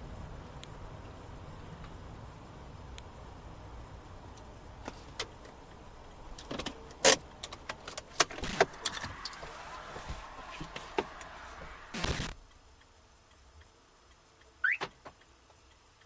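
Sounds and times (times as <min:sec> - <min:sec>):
car interior rumble: 0:00.0 - 0:12.5.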